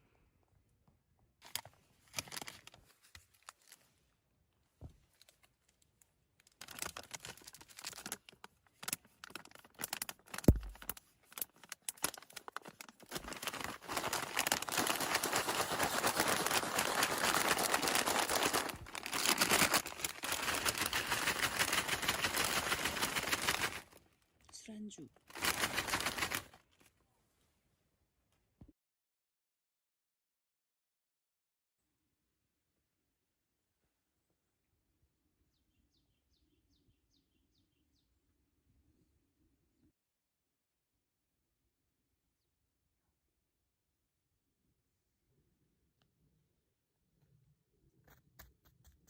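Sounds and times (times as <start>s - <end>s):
plastic packaging crinkling: 1.4s - 3.8s, 6.4s - 24.0s, 25.2s - 26.9s.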